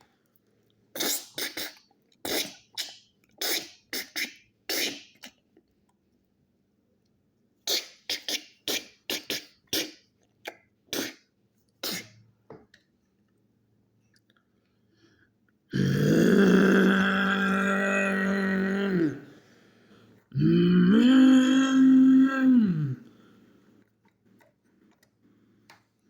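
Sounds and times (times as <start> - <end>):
person making breathy mouth sounds: 1.0 - 5.4, 7.7 - 11.2, 11.8 - 12.2, 15.7 - 19.4, 20.3 - 23.2.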